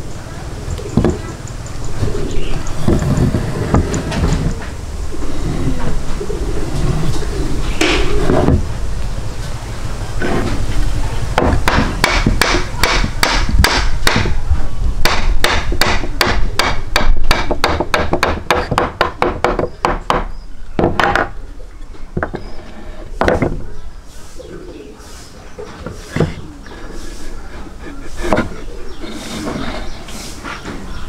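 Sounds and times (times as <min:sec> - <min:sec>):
sharp knocks: 0:11.4 - 0:14.4, 0:15.0 - 0:21.4.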